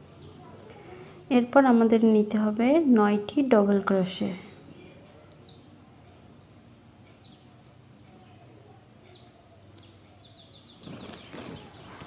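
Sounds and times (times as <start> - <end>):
bird chirping: 5.4 - 12.0
rustling noise: 10.8 - 12.0.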